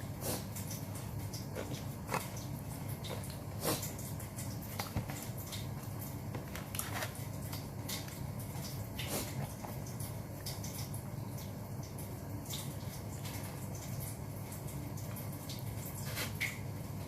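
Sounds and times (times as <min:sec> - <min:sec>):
person chewing and smacking: 0:00.4 - 0:06.0.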